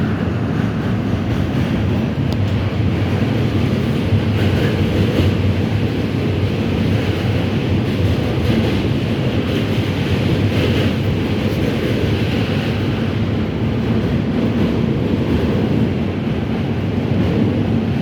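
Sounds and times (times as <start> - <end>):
subway train wheels rumbling: 0.0 - 18.0.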